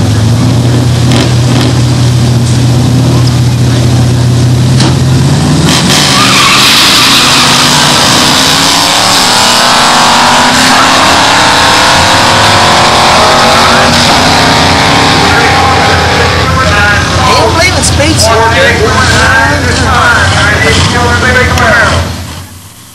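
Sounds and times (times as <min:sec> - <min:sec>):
drag car engines idling: 0:00.0 - 0:08.9, 0:11.9 - 0:22.9
drag car engines at full throttle: 0:00.0 - 0:22.9.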